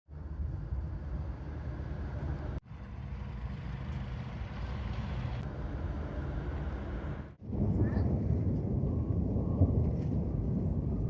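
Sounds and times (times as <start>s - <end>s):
storm wind buffeting microphone: 5.7s - 11.0s.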